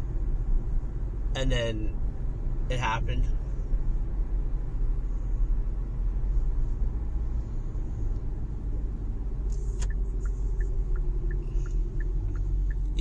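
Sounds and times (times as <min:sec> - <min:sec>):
car road rumble inside cabin: 0:00.0 - 0:13.0
faint ticks: 0:09.5 - 0:13.0.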